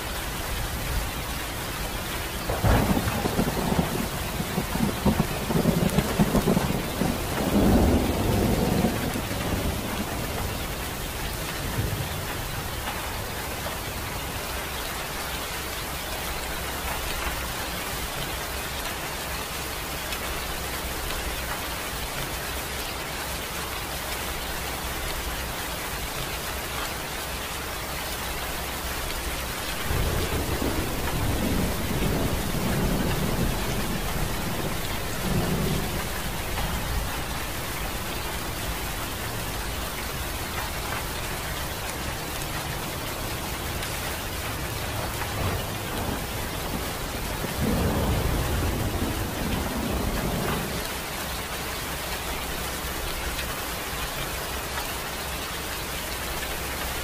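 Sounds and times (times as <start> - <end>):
rain hissing: 0.0 - 57.0
thunder rumbling: 2.4 - 12.8, 29.0 - 43.0, 44.9 - 50.9.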